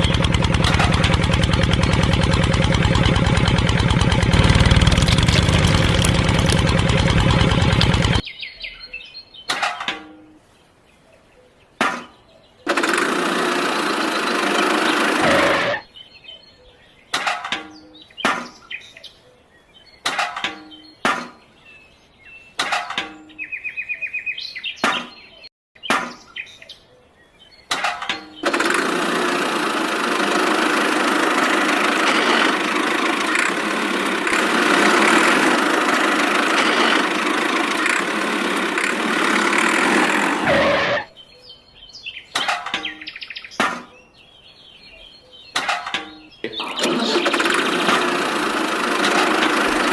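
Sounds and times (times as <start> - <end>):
engine running: 0.0 - 8.2, 12.7 - 15.9, 27.7 - 41.1, 45.7 - 49.9.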